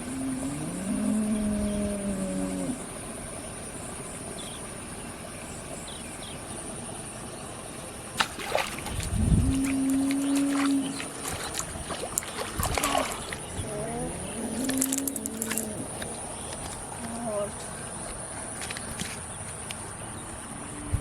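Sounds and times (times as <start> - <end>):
cow mooing: 0.0 - 2.8, 9.4 - 11.3, 13.6 - 16.0.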